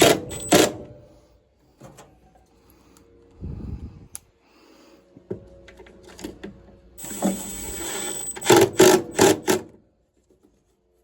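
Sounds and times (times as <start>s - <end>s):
power tool motor whirring: 7.0s - 9.5s.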